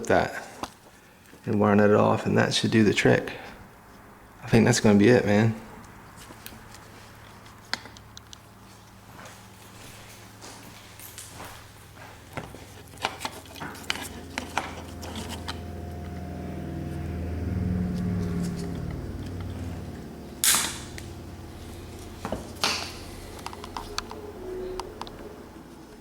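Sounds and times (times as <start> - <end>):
low hum: 12.8 - 26.0.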